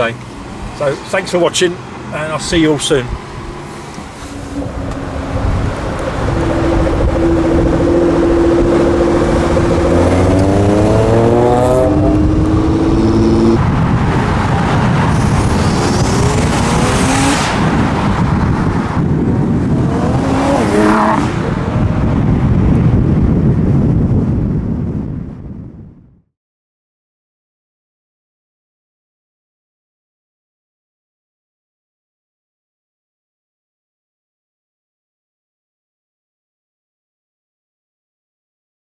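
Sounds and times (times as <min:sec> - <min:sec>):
car engine revving: 0:00.0 - 0:22.6.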